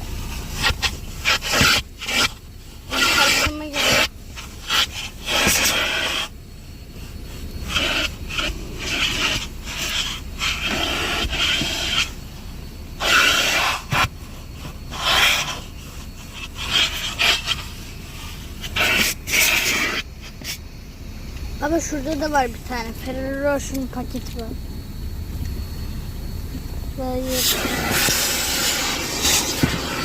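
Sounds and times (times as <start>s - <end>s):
vacuum nozzle scraping suction: 0.2s - 6.3s, 7.0s - 12.2s, 13.0s - 20.6s, 27.3s - 30.0s.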